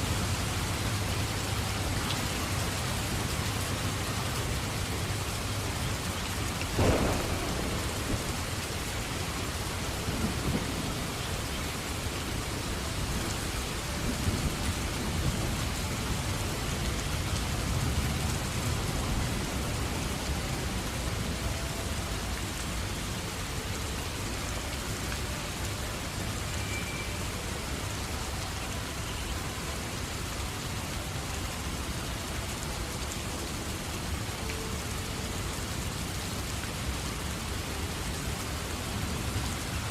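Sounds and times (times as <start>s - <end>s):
steady rain hiss: 0.0s - 39.9s
rumbling thunder: 6.7s - 12.1s
sharp thunderclap: 6.8s - 11.2s.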